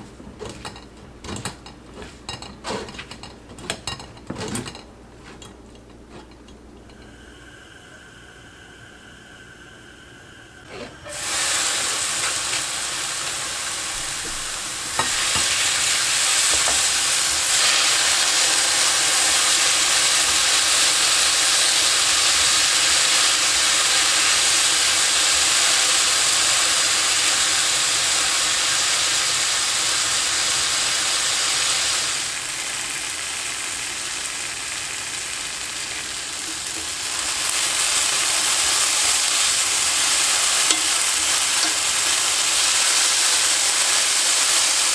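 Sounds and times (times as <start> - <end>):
potato strips sizzling in a pan: 11.0 - 44.9.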